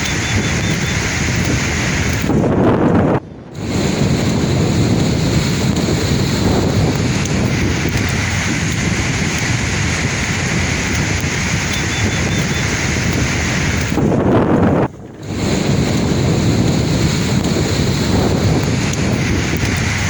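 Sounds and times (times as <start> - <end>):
sea waves breaking on shore: 0.0 - 20.0
wind buffeting microphone: 0.0 - 20.0.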